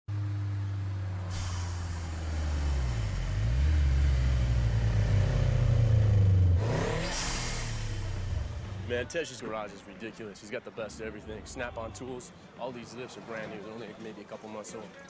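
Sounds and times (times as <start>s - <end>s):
car passing close: 0.1s - 9.2s
car engines revving: 0.1s - 9.7s.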